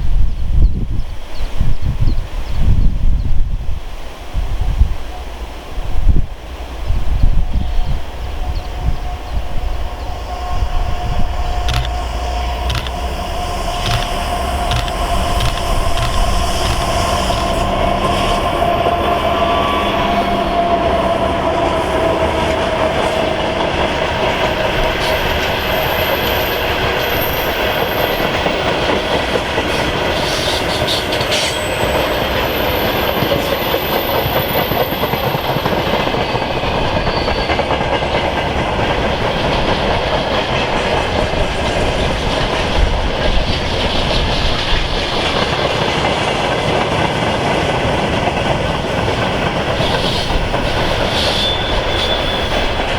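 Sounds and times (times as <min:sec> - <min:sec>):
freight train wheels clattering: 0:10.9 - 0:52.9.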